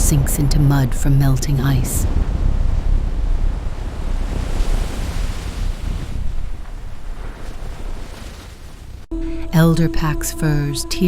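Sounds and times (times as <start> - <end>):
steady low rushing noise: 0.0 - 9.5.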